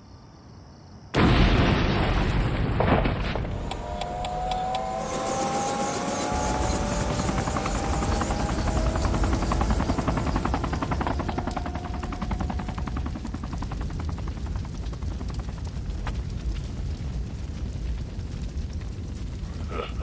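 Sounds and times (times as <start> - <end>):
helicopter rotor chopping: 3.5 - 15.6.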